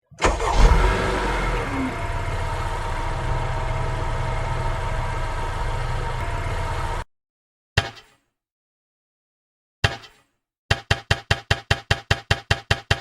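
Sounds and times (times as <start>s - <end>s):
engine idling: 0.2s - 7.0s.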